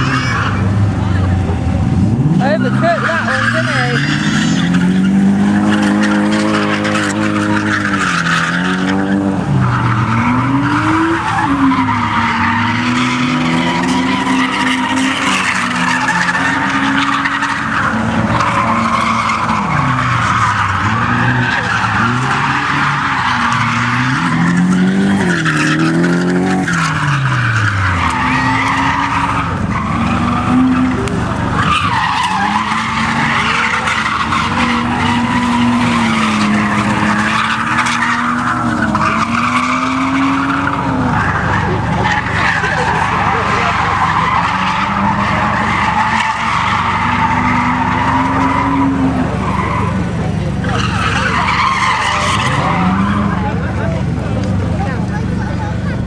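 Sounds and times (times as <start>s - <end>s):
car engine revving: 0.0s - 56.0s
tyres screeching: 0.0s - 56.0s.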